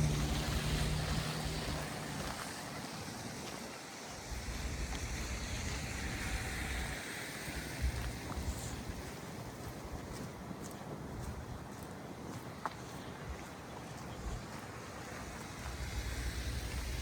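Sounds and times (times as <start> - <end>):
vehicle engine hum: 0.0 - 3.5, 14.0 - 17.0
wind buffeting microphone: 0.0 - 17.0.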